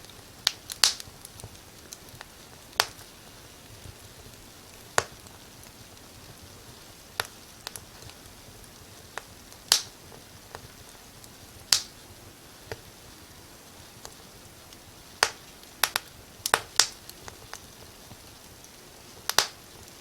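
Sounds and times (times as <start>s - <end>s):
faint steady hiss: 0.0s - 20.0s
fire crackling and popping: 0.0s - 20.0s.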